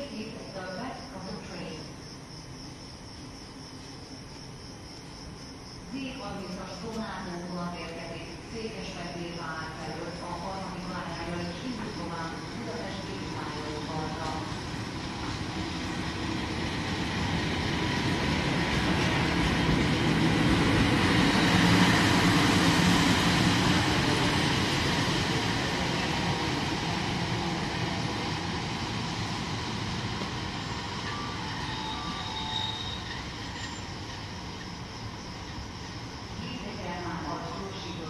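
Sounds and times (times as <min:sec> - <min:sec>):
train rumbling on tracks: 0:00.0 - 0:38.0.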